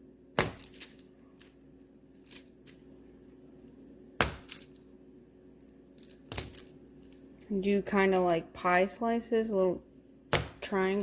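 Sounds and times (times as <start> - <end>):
knife chopping wax: 0.4 - 0.9, 4.2 - 4.6, 10.3 - 11.0.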